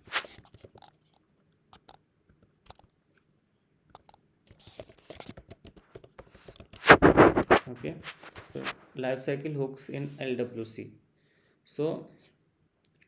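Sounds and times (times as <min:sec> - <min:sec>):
faint small clicks and ticks: 0:00.3 - 0:03.3, 0:03.9 - 0:06.8.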